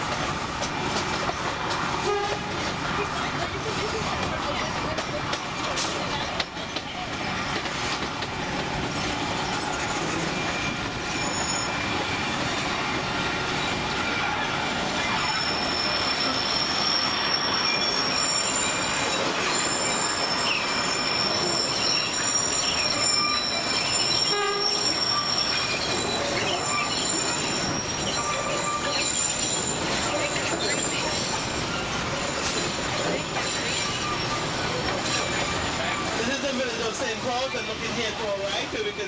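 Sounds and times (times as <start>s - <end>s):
train wheels rumbling and rattling: 0.0s - 39.0s
high-pitched wheel squeal: 9.4s - 12.6s, 13.6s - 36.2s.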